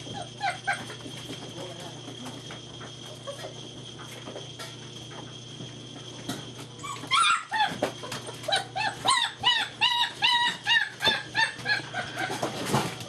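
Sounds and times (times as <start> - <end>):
puppy yelping: 0.1 - 1.0, 6.8 - 12.5.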